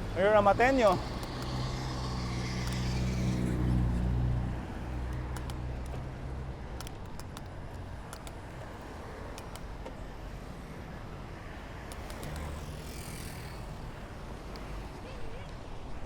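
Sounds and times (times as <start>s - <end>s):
road traffic rush: 0.0s - 16.0s.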